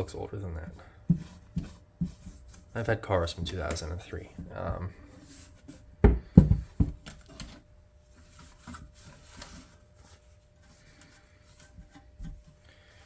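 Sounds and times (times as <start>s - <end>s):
soft rubbing and rustling: 0.0s - 6.0s, 7.2s - 13.0s.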